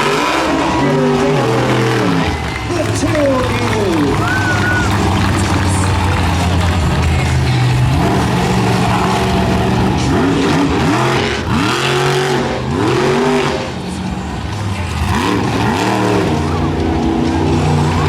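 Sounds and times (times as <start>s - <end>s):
truck engine idling and revving: 0.0s - 18.0s.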